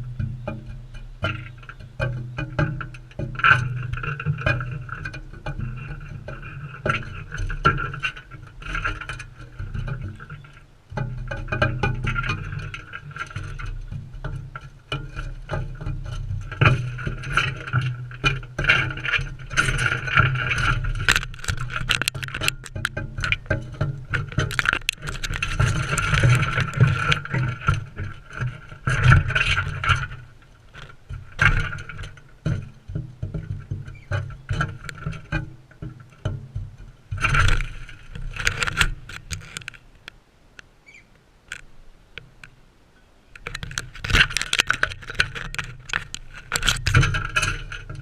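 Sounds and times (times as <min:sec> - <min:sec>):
beaks clicking and scraping on seed: 0:14.9 - 0:32.2, 0:37.2 - 0:40.2, 0:43.3 - 0:48.0.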